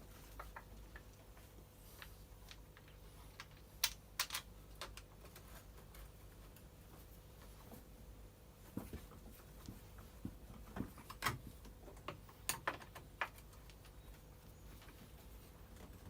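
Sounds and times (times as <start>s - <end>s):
plastic parts clicking and tapping: 0.3s - 5.5s, 10.2s - 14.0s.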